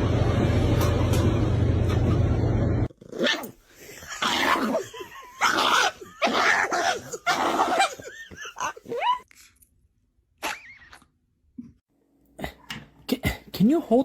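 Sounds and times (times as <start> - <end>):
dog whining: 3.2 - 9.3.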